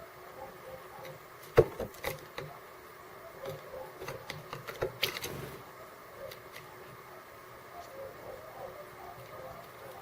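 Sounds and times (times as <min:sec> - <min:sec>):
birds pecking at seeds: 0:03.3 - 0:10.0.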